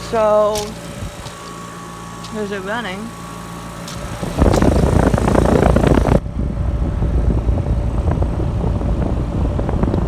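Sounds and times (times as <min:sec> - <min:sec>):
heat pump humming: 0:00.0 - 0:10.0.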